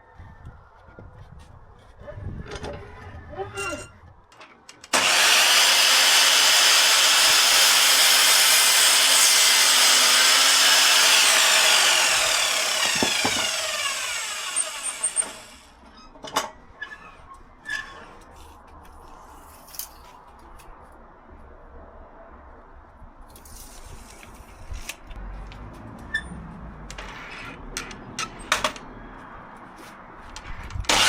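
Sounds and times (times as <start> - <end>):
power saw cutting wood: 4.9 - 15.7.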